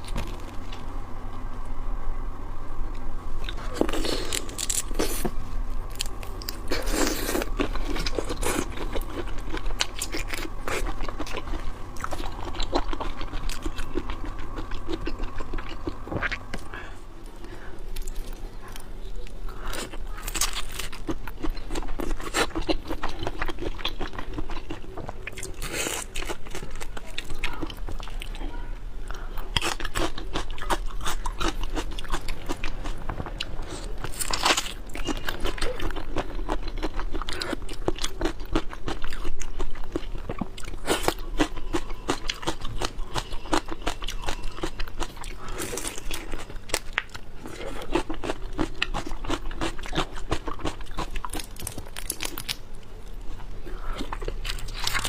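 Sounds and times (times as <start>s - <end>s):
low hum: 0.0s - 25.5s
person chewing and crunching: 3.4s - 28.5s, 29.1s - 55.0s.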